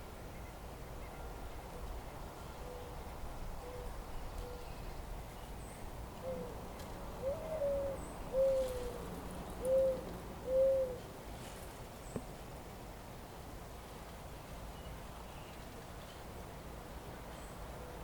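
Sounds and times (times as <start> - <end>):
bird hooting: 6.2 - 6.6, 7.2 - 9.0, 9.6 - 11.0.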